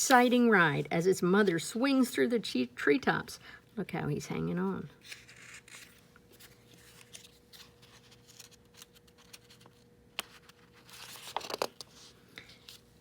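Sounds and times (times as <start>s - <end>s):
faint steady hum: 0.0s - 13.0s
book pages rustling: 5.0s - 12.9s.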